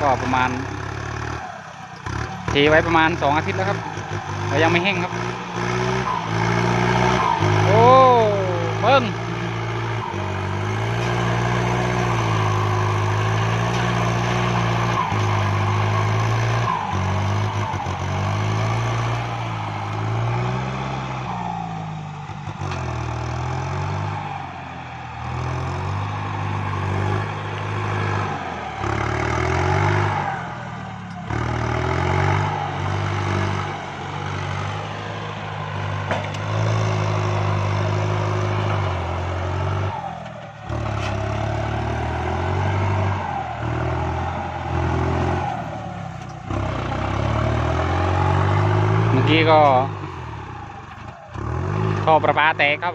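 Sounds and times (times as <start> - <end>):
tractor diesel engine working hard: 0.0 - 52.9.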